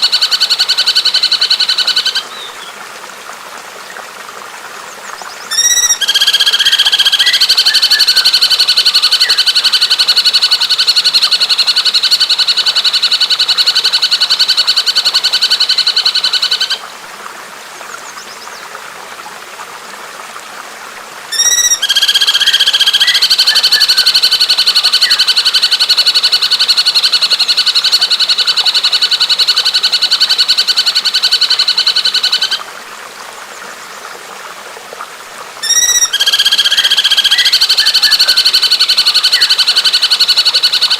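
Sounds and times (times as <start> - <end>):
running water: 0.0 - 40.9
bird trilling: 5.5 - 8.6, 21.3 - 24.2, 35.6 - 40.9.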